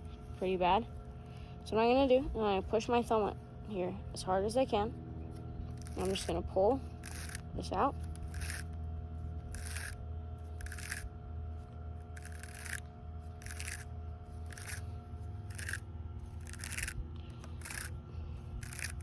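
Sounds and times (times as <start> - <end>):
steady low hum: 0.0 - 19.0
fishing line rasping off spool: 5.7 - 19.0.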